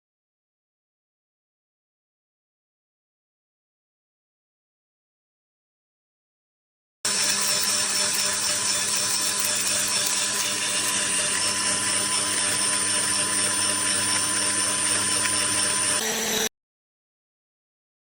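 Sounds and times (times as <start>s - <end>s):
electric coffee grinder motor running: 7.1s - 16.5s.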